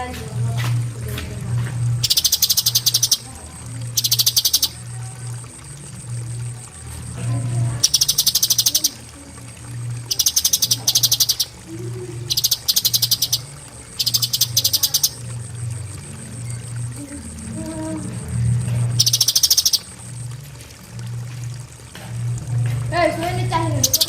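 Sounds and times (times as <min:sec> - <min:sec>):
bird singing fast high trills: 0:02.0 - 0:04.8, 0:07.8 - 0:09.0, 0:10.0 - 0:11.6, 0:12.2 - 0:16.8, 0:19.0 - 0:20.2.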